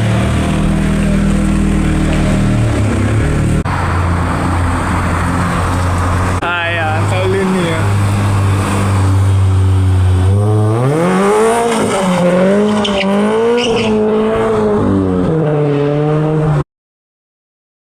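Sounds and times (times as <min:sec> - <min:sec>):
car engine revving hard: 0:08.0 - 0:16.6
tyres squealing: 0:12.8 - 0:14.0.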